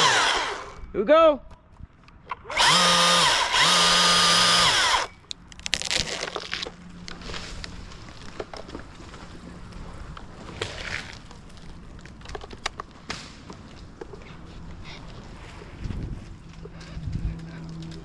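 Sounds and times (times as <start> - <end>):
chainsaw revving: 0.0 - 0.8, 2.5 - 5.1
irregular crackles and snaps: 5.2 - 14.1.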